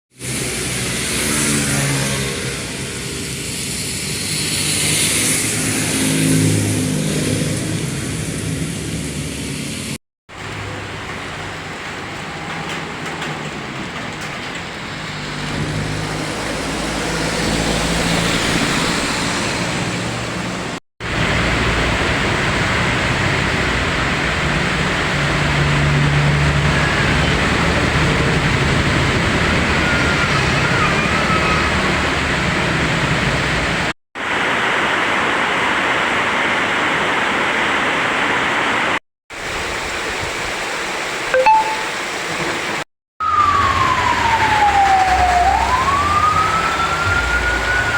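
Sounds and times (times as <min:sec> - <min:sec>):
cars passing on wet road: 0:00.1 - 0:47.9
rain hiss: 0:08.4 - 0:12.4, 0:21.0 - 0:27.1, 0:31.4 - 0:42.8.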